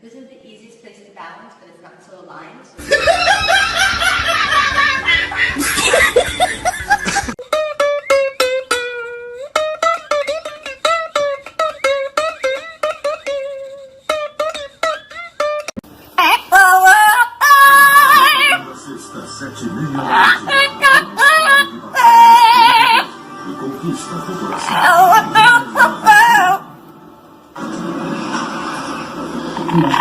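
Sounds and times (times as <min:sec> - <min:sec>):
busy mixed sound: 0:02.8 - 0:07.4, 0:15.8 - 0:30.0
high wavering voice-like sound: 0:16.2 - 0:18.6, 0:20.0 - 0:23.1, 0:24.5 - 0:26.7.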